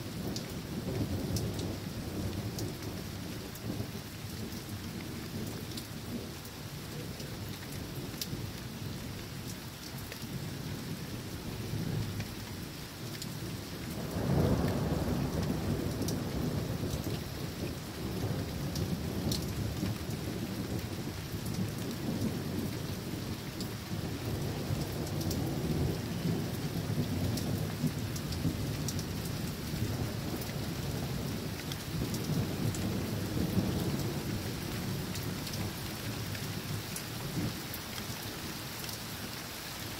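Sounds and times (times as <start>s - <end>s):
steady rain falling: 0.0s - 39.9s
thunder rumbling: 13.9s - 35.8s.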